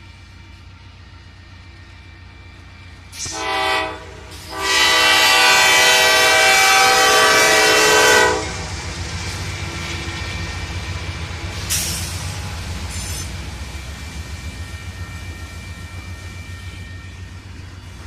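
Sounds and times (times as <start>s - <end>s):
diesel locomotive rumbling: 0.0s - 18.0s
brief air hiss: 3.1s - 3.4s, 11.6s - 13.3s
locomotive horn: 3.2s - 8.7s.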